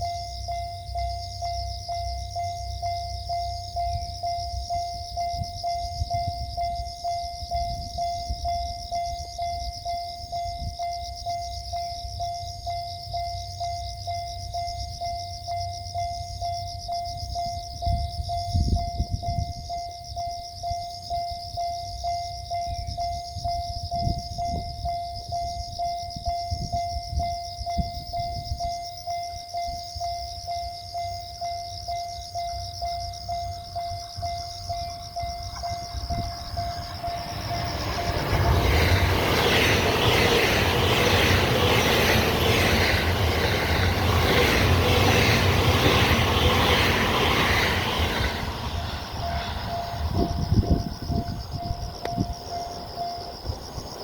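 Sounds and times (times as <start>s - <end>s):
level crossing warning bell: 0.0s - 54.0s
wind buffeting microphone: 17.8s - 19.8s, 22.8s - 28.8s, 33.9s - 54.0s.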